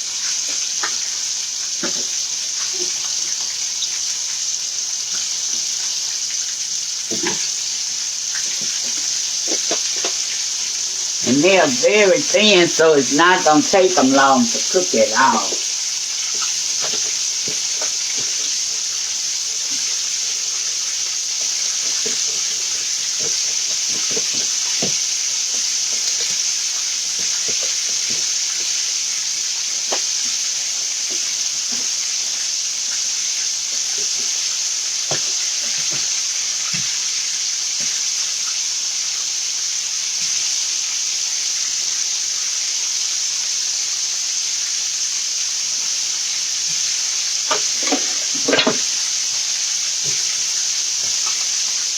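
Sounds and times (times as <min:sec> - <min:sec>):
chicken sizzling in a skillet: 0:00.0 - 0:11.2, 0:15.1 - 0:51.9
oil popping and crackling: 0:00.0 - 0:11.2, 0:15.6 - 0:38.1, 0:46.8 - 0:51.9.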